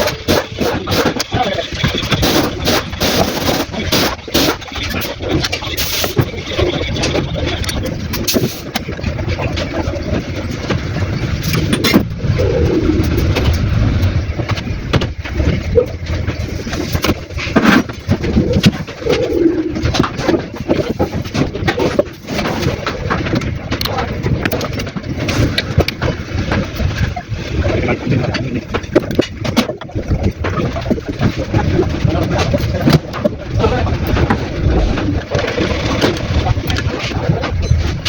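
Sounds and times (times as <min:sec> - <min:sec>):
scattered clicks and knocks: 0:00.0 - 0:38.0
doves cooing: 0:11.7 - 0:13.8, 0:18.2 - 0:20.7.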